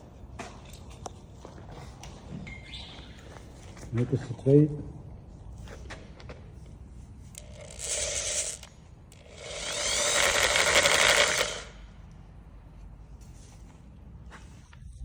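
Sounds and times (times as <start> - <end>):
electric drill boring metal: 7.4 - 11.8.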